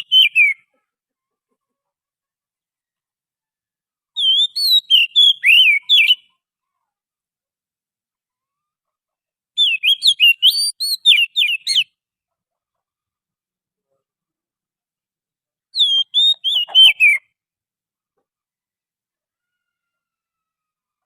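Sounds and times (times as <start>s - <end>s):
bird singing whistled notes: 0.0s - 0.6s, 4.2s - 6.3s, 9.6s - 12.0s, 15.8s - 17.3s.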